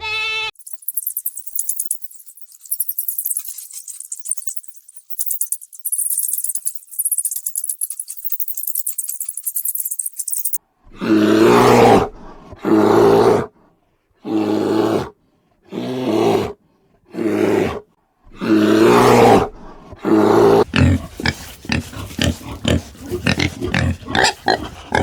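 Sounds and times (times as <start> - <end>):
animal grunting: 10.9 - 13.5, 15.7 - 25.0.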